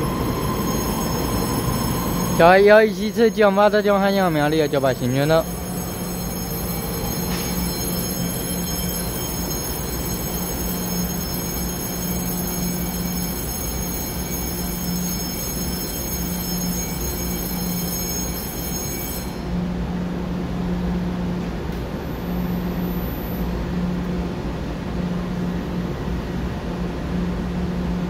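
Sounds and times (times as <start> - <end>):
train wheels rumbling: 0.0 - 19.2.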